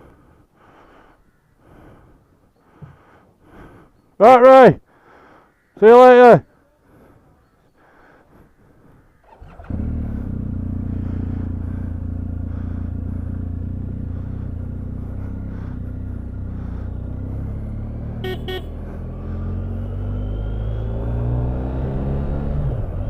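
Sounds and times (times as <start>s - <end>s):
motorcycle engine starting and idling: 9.2s - 19.4s.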